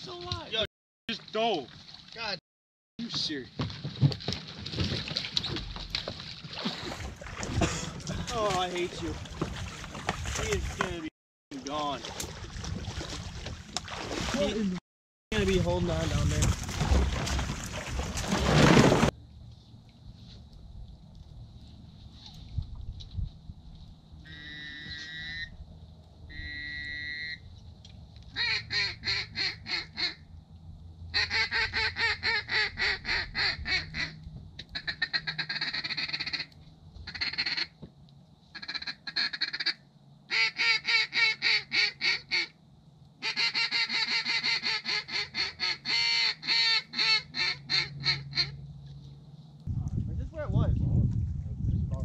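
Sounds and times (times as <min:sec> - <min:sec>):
duck quacking: 0:24.3 - 0:25.5, 0:26.3 - 0:27.4, 0:28.4 - 0:30.2, 0:31.2 - 0:36.5, 0:37.1 - 0:37.8, 0:38.6 - 0:42.5, 0:43.2 - 0:48.6.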